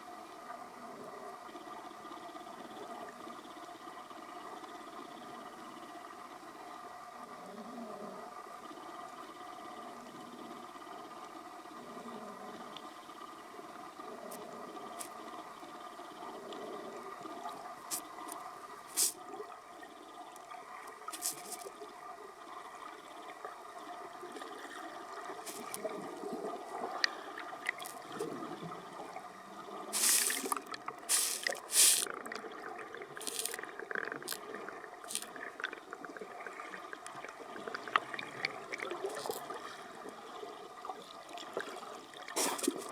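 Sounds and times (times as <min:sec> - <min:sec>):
water sloshing and splashing: 0:25.4 - 0:28.5, 0:29.9 - 0:36.1.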